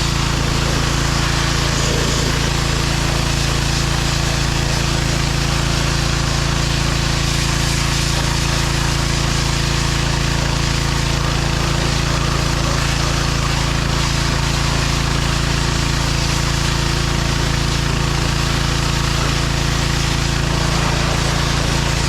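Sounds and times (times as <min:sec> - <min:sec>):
tractor diesel engine running: 0:00.0 - 0:07.4, 0:17.3 - 0:22.0.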